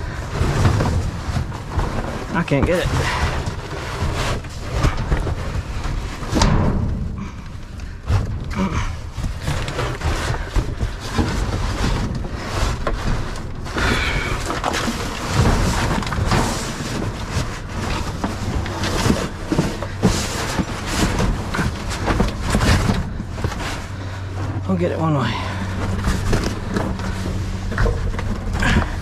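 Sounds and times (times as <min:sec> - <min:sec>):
low rumble: 0:00.0 - 0:29.0
trash rustling and clattering: 0:00.0 - 0:29.0.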